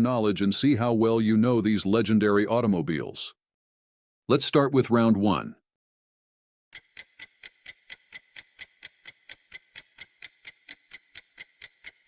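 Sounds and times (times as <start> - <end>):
clock ticking: 6.8 - 12.0.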